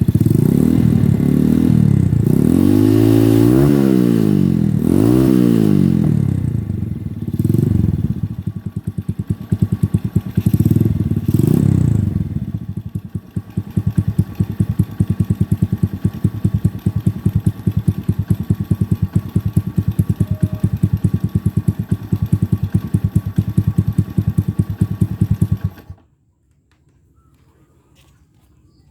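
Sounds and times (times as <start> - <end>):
motorcycle engine revving and idling: 0.0 - 26.0.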